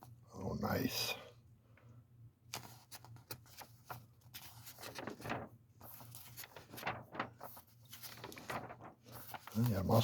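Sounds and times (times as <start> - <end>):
faint steady hum: 0.0 - 10.0
magazine pages rustling: 2.5 - 10.0.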